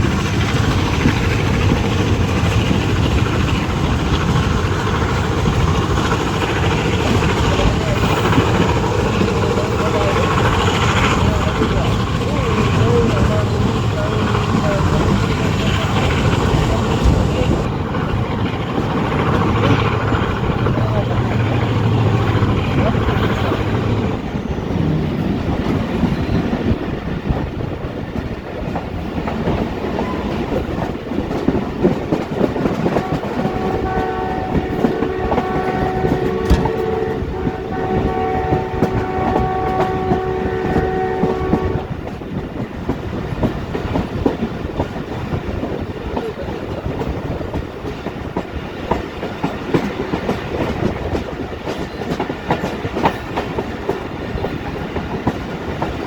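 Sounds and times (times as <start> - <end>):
train wheels clattering on rails: 0.0 - 56.0
locomotive horn blowing: 32.9 - 41.9.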